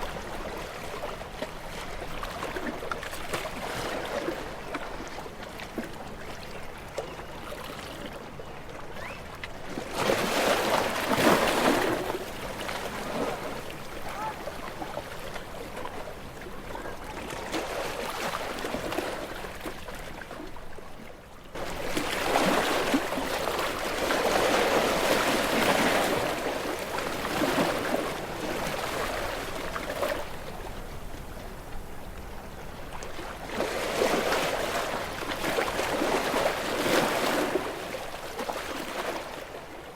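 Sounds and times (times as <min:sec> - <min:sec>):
big waves surging: 0:09.8 - 0:19.6, 0:21.6 - 0:39.6.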